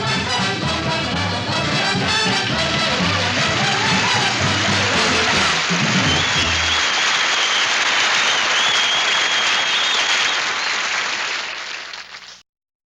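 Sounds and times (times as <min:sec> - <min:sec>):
audience applauding: 0:01.2 - 0:12.4
long high whistle: 0:05.8 - 0:11.1.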